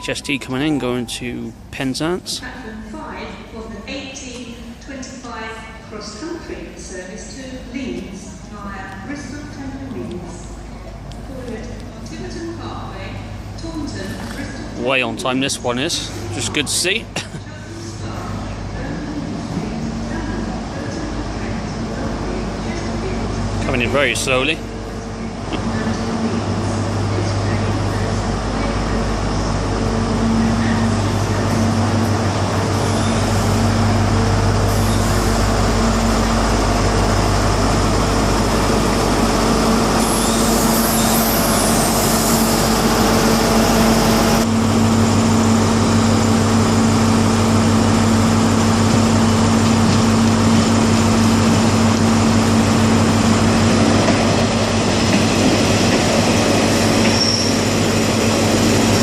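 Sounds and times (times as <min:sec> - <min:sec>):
diesel train engine hum: 0:00.0 - 0:59.0
high metallic squeal: 0:40.0 - 0:42.6, 0:57.1 - 0:57.7.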